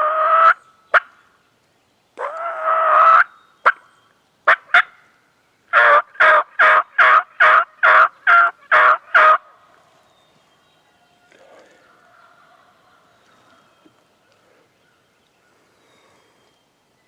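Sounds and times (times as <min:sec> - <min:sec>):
turkey yelping: 0:00.0 - 0:01.1, 0:02.2 - 0:03.8, 0:04.5 - 0:04.9, 0:05.7 - 0:09.4.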